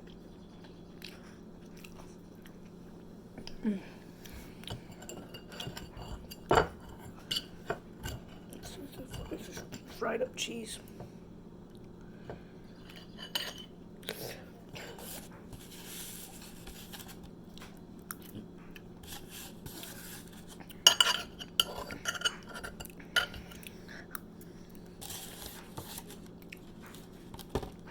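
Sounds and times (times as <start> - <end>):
eating sounds: 0.0 - 6.2
steady low hum: 0.0 - 27.9
plate and utensils clinking: 4.7 - 9.9, 12.8 - 13.7, 20.8 - 23.6.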